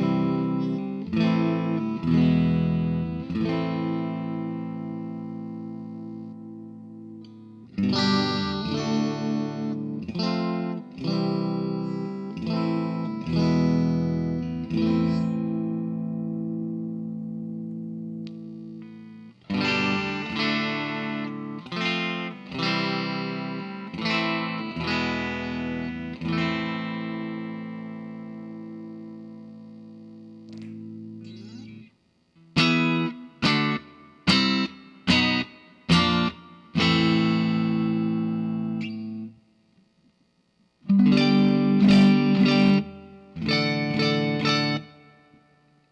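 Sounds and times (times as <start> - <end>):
electric guitar strumming chords: 0.0 - 39.6, 40.8 - 45.9
guitar string scratching: 31.2 - 31.9.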